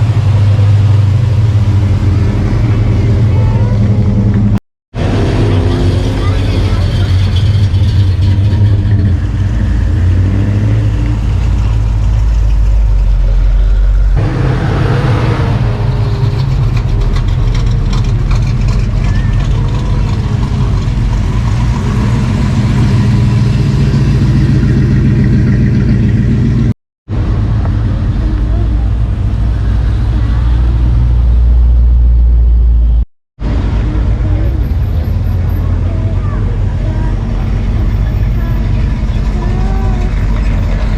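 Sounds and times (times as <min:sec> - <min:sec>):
car engines running: 0:00.0 - 0:40.9.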